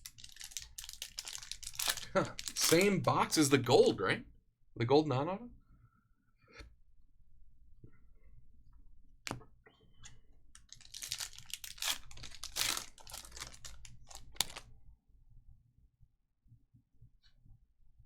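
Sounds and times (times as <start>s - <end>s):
cards and wrappers rustling: 0.0s - 3.7s, 10.0s - 14.7s.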